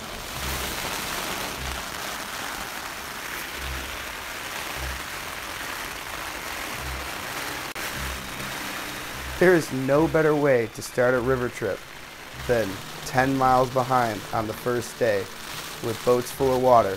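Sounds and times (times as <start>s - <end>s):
heavy rain on a tent: 0.0s - 16.9s
low pulsing: 3.5s - 16.7s.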